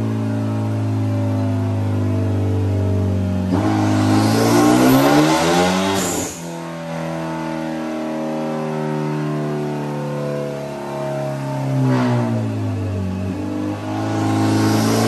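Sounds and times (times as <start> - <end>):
turbocharged engine revving: 3.0 - 7.7, 11.6 - 15.0.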